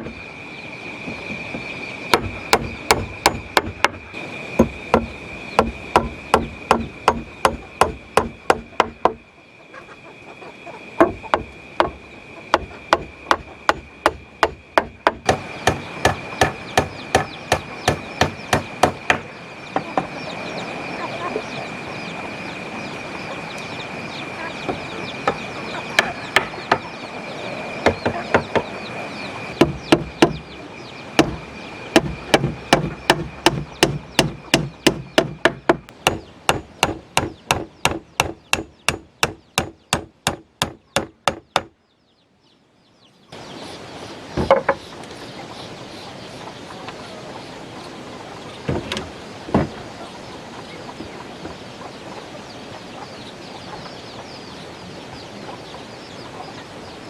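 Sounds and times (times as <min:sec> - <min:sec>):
tool striking wood: 0:02.1 - 0:04.0, 0:04.6 - 0:09.2, 0:11.0 - 0:19.2, 0:27.8 - 0:28.6, 0:29.6 - 0:30.4, 0:31.2 - 0:31.4, 0:32.0 - 0:41.7.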